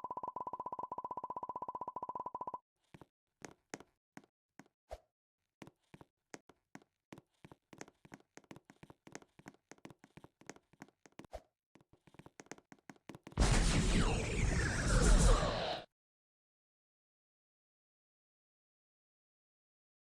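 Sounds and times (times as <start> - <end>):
loud rushing noise: 13.4 - 15.8.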